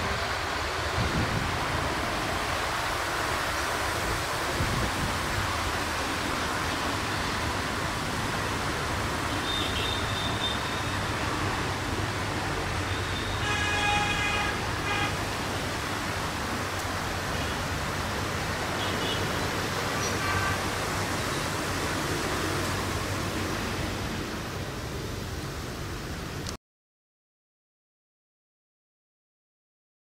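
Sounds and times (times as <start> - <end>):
train running noise: 0.0 - 25.3
train horn blasts: 13.1 - 15.2.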